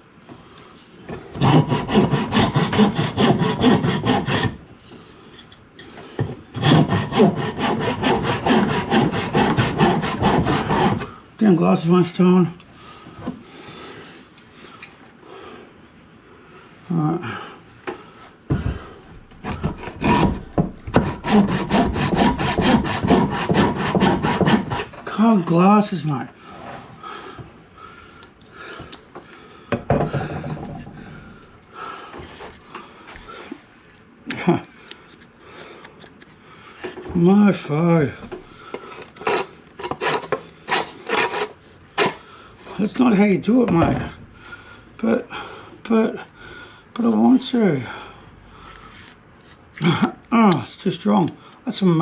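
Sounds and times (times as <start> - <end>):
hand saw cutting wood: 1.2 - 4.7, 6.5 - 11.2, 19.4 - 25.3, 38.9 - 44.1.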